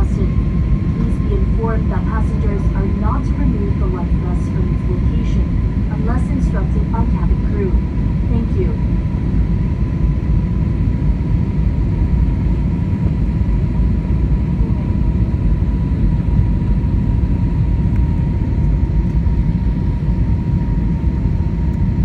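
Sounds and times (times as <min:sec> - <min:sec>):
faint high whine: 0:00.0 - 0:09.0
engine and airflow rumble: 0:00.0 - 0:22.0.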